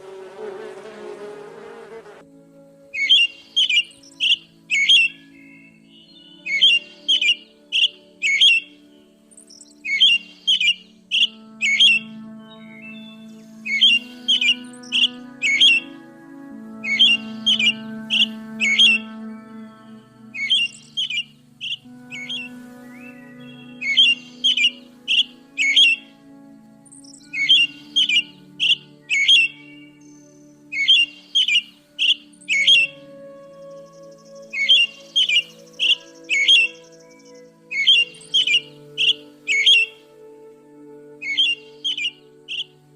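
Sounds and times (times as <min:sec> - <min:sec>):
background music: 0:00.0 - 0:42.9
bird chirping: 0:02.9 - 0:40.1, 0:41.2 - 0:42.9
bird giving sharp calls: 0:20.4 - 0:22.5.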